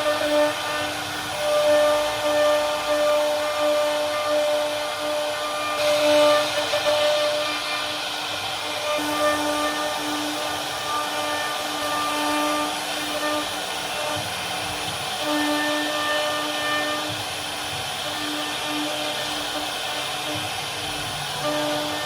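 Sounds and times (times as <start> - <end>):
cnc router carving wood: 0.0 - 22.0.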